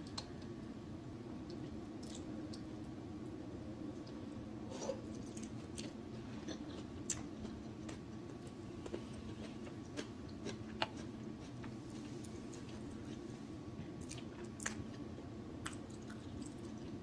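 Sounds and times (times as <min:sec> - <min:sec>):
low background hum: 0:00.0 - 0:17.0
person chewing food: 0:04.0 - 0:13.3, 0:14.0 - 0:15.0.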